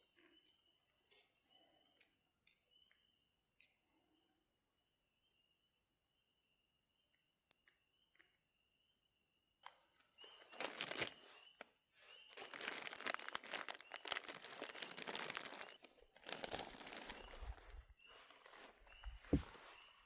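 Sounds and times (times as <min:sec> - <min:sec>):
faint high chirp: 0:00.0 - 0:20.0
material crinkling and rustling: 0:09.7 - 0:20.0.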